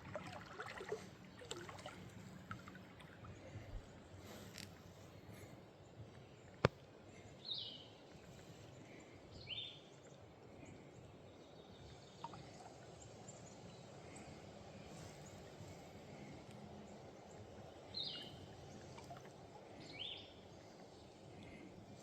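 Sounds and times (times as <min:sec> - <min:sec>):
faint outdoor background: 0:00.0 - 0:22.0.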